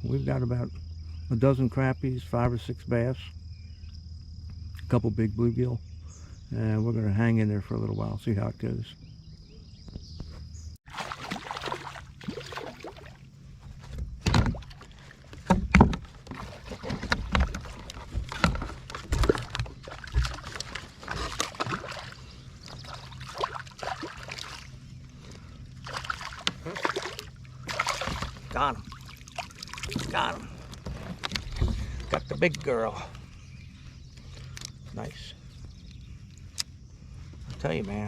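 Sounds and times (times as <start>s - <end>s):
water sloshing against hull: 10.8s - 37.8s.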